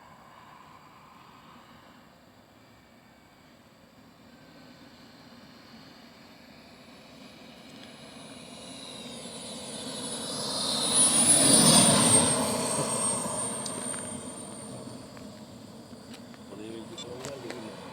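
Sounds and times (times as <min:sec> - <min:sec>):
model jet turbine whine: 0:00.0 - 0:17.9.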